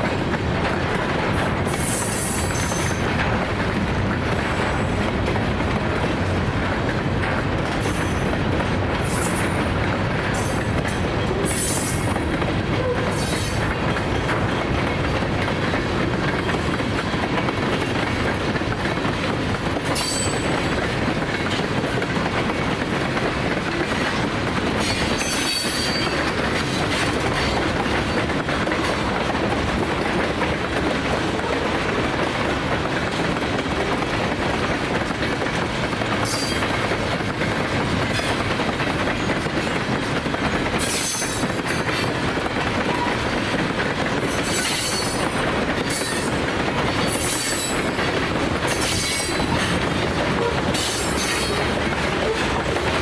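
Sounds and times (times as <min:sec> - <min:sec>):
train rumble: 0:00.0 - 0:53.0
train wheels clacking on rail joints: 0:00.0 - 0:53.0
wheel squeals: 0:20.0 - 0:20.4, 0:24.8 - 0:26.8.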